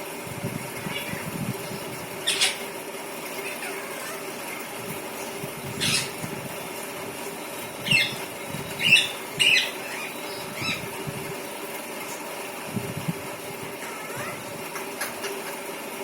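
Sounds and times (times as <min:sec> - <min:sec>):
parrot high calls: 0:02.2 - 0:02.7, 0:03.3 - 0:04.5, 0:05.8 - 0:06.2, 0:07.8 - 0:08.2, 0:08.8 - 0:10.9, 0:13.8 - 0:15.5.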